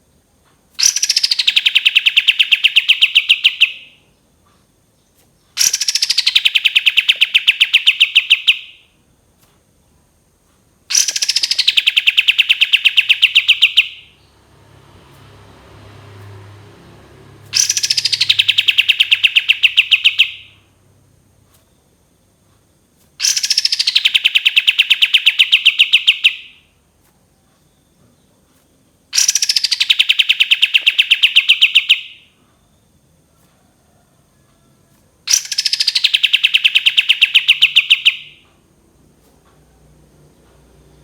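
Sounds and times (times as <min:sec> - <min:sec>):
bird singing rapid notes: 0:00.8 - 0:04.0, 0:05.6 - 0:08.8, 0:10.9 - 0:14.4, 0:17.4 - 0:20.6, 0:23.2 - 0:26.6, 0:29.2 - 0:32.3, 0:35.3 - 0:38.4.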